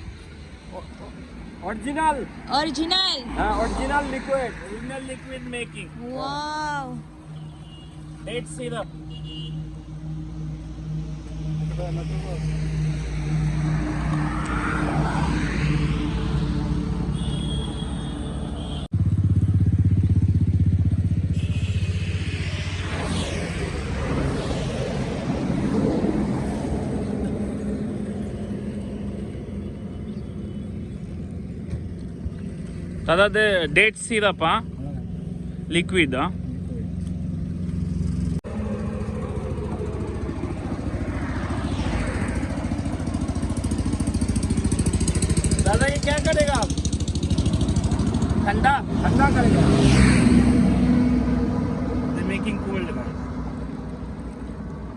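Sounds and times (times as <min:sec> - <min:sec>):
throbbing engine: 0:08.1 - 0:17.8, 0:18.8 - 0:54.9
motor engine running: 0:36.3 - 0:48.6.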